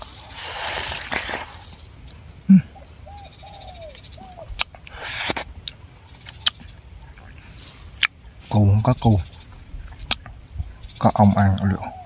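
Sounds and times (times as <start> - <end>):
rustling: 0.0 - 2.5
bird calling: 2.4 - 12.0.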